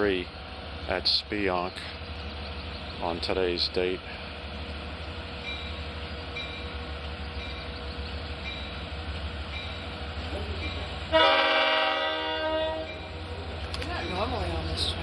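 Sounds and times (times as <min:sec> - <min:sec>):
idling diesel train rumble: 0:00.0 - 0:15.0
diesel locomotive horn blast: 0:10.8 - 0:13.1.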